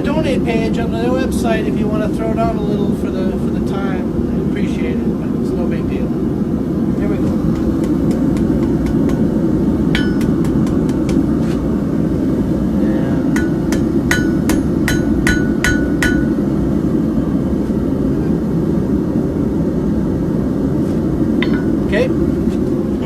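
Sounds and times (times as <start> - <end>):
low rumble: 0.0 - 23.0
hammer striking steel on anvil: 9.9 - 11.3, 13.3 - 16.4, 21.4 - 21.9.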